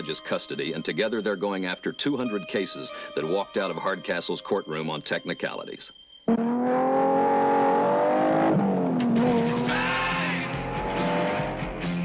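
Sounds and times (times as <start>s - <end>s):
sports car engine revving: 6.3s - 12.0s
rock music with drum hits: 9.1s - 12.0s.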